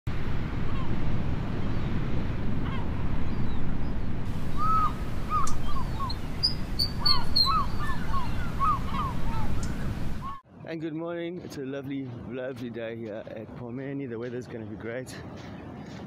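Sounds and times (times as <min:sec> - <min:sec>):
low rush of noise: 0:00.1 - 0:10.4
short arched bird calls: 0:04.4 - 0:10.4.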